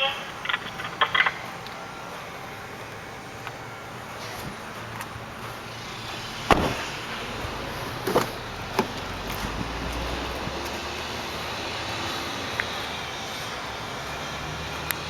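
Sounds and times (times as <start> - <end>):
steady background hum: 0.0 - 15.0
car interior fittings clunking: 6.5 - 7.0.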